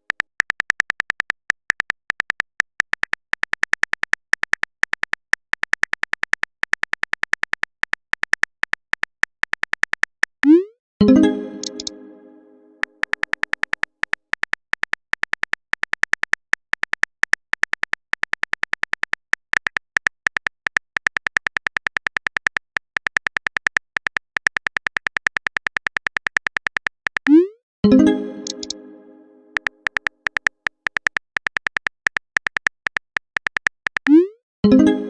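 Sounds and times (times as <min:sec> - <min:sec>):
phone keyboard clicks: 0:00.0 - 0:10.4, 0:11.6 - 0:11.9, 0:12.9 - 0:27.4, 0:29.6 - 0:34.2.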